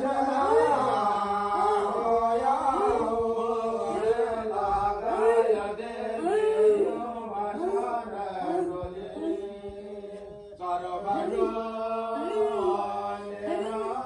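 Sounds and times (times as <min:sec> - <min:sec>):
voices chanting: 0:00.0 - 0:14.0.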